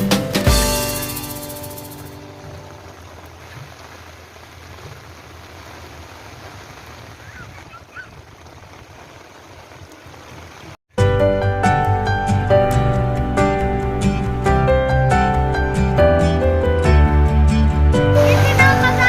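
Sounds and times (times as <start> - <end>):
music: 0.0 - 2.8, 11.0 - 19.0
heavy rain pouring: 0.8 - 10.8, 18.1 - 19.0.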